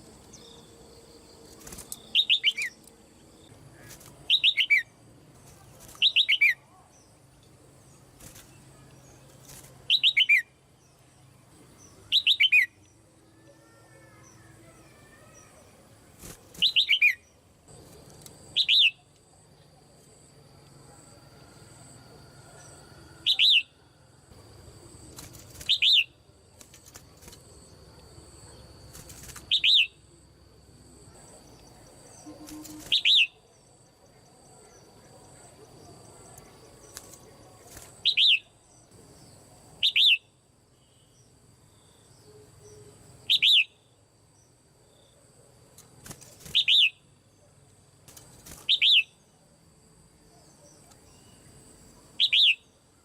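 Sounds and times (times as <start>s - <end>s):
faint bird twittering: 0.3s - 7.2s, 7.8s - 17.4s, 18.5s - 19.1s, 21.8s - 23.9s, 31.2s - 41.3s, 42.1s - 43.9s, 46.1s - 47.6s, 48.5s - 49.3s, 50.3s - 52.8s.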